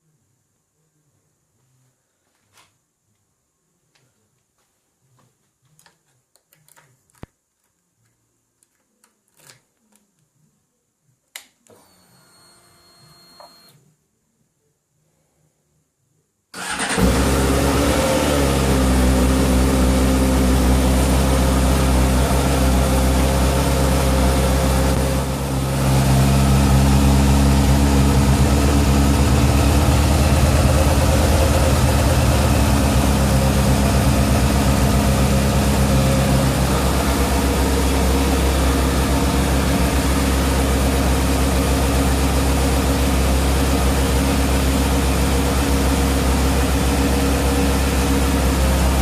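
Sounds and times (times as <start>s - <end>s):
motorcycle engine starting and running: 16.6s - 49.0s.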